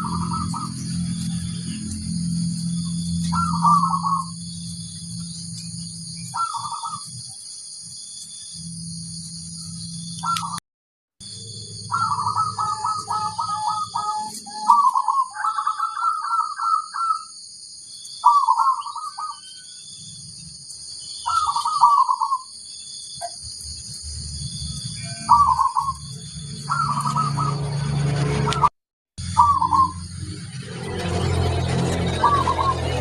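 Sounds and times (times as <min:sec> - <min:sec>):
dove cooing: 0:03.2 - 0:04.4, 0:06.4 - 0:07.1, 0:11.8 - 0:17.2, 0:21.3 - 0:22.4, 0:25.3 - 0:26.0, 0:26.7 - 0:27.6.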